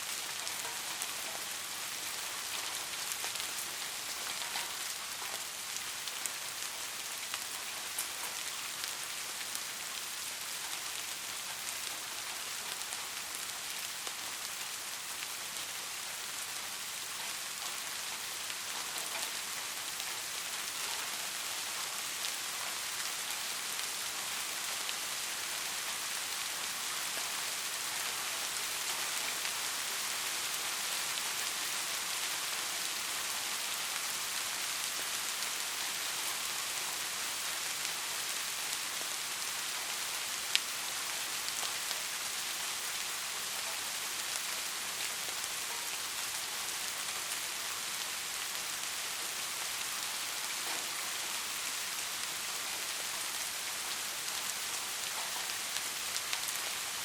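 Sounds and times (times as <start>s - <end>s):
rain falling: 0.0s - 57.0s
raindrop ticks: 0.3s - 9.6s, 17.2s - 24.0s.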